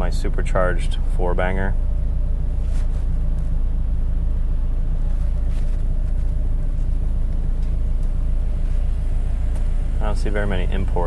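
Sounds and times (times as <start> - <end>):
sports car engine idling: 0.0 - 11.0.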